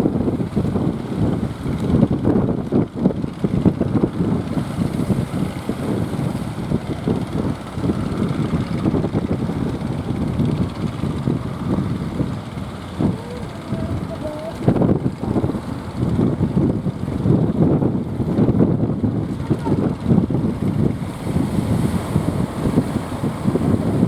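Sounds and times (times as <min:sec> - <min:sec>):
boat engine running: 0:00.0 - 0:24.0
wind buffeting microphone: 0:00.0 - 0:24.0.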